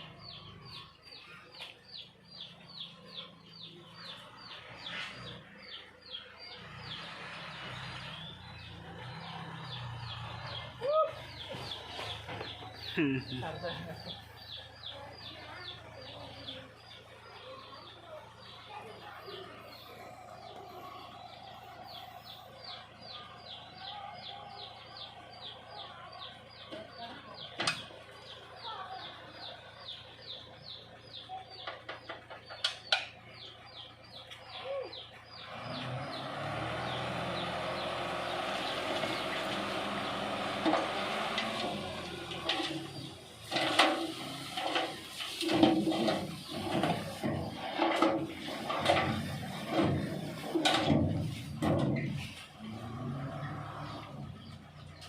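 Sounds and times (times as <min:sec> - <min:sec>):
bird chirping: 0:00.0 - 0:55.0
soil rushing out of truck bed: 0:35.8 - 0:53.8.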